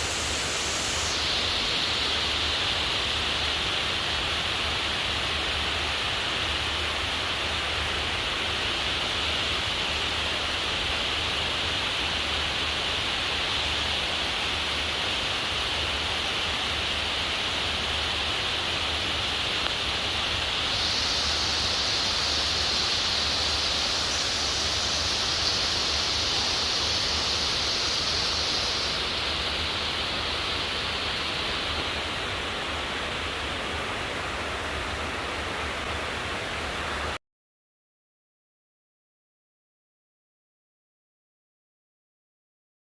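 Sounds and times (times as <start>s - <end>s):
heavy rain pouring: 7.5s - 37.2s.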